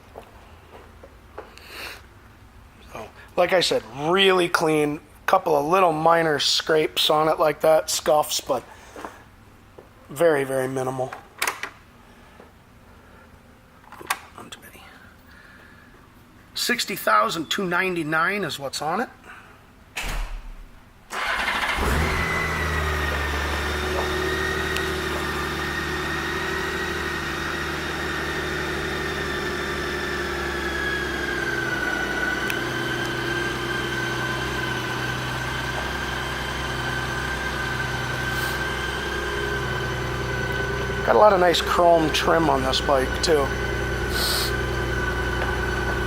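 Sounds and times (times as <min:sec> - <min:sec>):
starter motor cranking: 0:21.1 - 0:46.0
motorcycle engine idling: 0:22.4 - 0:46.0.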